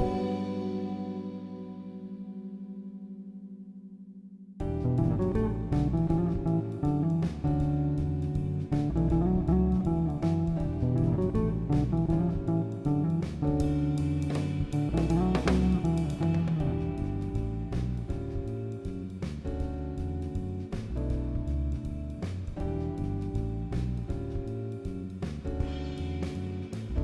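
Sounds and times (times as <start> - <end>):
plucked guitar music: 0.0 - 19.0
bass line: 0.0 - 27.0.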